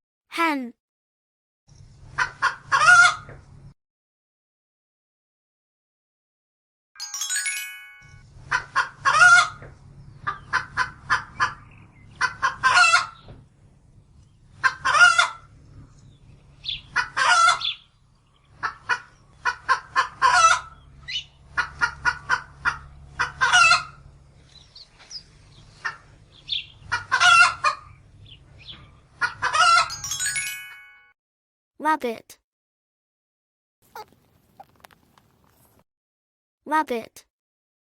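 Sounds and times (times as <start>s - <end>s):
hen cackling: 2.1s - 3.3s, 8.5s - 13.2s, 14.6s - 15.5s, 16.6s - 17.9s, 18.5s - 24.0s, 25.8s - 28.0s, 29.1s - 30.0s, 33.9s - 34.9s
brief chime: 7.0s - 8.2s.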